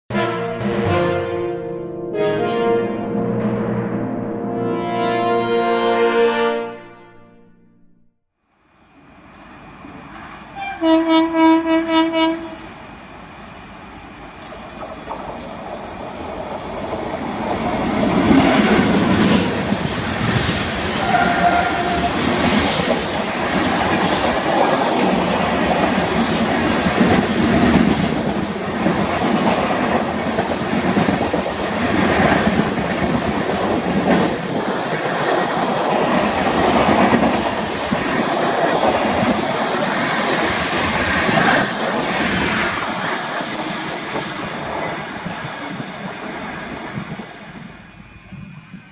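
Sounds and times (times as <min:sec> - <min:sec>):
locomotive horn: 0:00.1 - 0:07.9, 0:10.6 - 0:12.6, 0:21.0 - 0:22.3
train passing with wheels clattering: 0:08.7 - 0:48.9.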